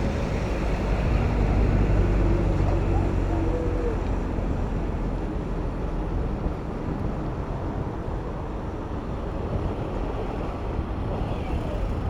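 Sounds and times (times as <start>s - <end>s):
traffic noise: 0.0s - 6.3s
wind buffeting microphone: 0.0s - 12.0s.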